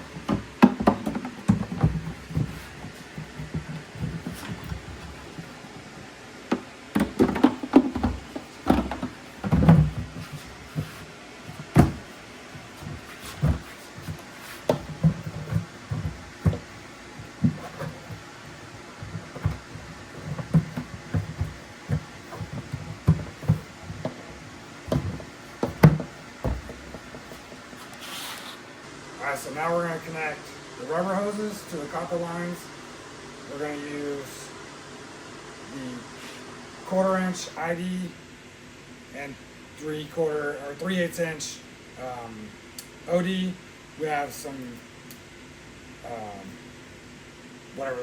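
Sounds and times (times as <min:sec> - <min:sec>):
objects knocking and clunking: 0:00.0 - 0:05.7, 0:06.5 - 0:27.9.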